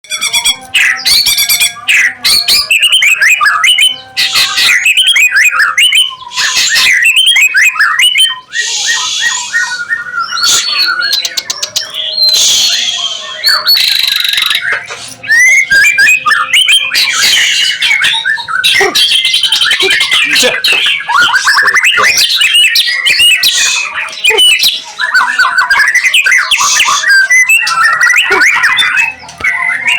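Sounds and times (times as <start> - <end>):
songbirds singing: 0.0 - 29.9
harsh rasping bird calls: 0.2 - 29.9.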